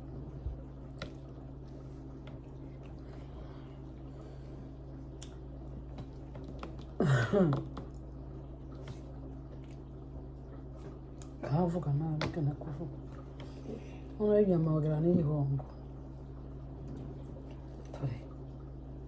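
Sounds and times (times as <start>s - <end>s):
steady low hum: 0.0s - 19.0s
person chewing soft food: 7.8s - 11.4s.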